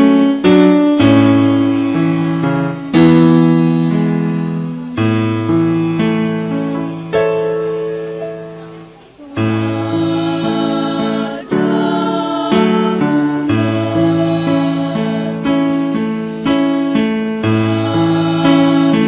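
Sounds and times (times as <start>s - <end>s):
keyboard chords: 0.0s - 19.0s
choir singing: 9.2s - 19.0s.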